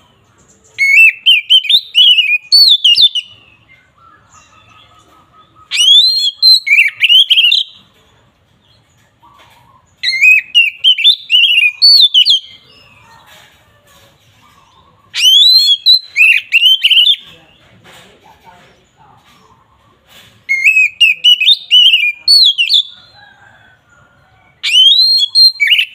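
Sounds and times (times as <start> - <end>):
bird singing whistled phrases: 0.8 - 4.8, 5.6 - 7.8, 10.0 - 12.7, 15.1 - 17.2, 20.5 - 23.1, 24.6 - 25.9.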